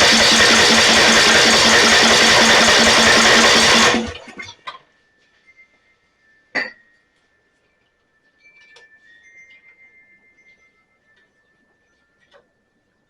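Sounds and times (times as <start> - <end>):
mower engine cranking: 0.0 - 4.6.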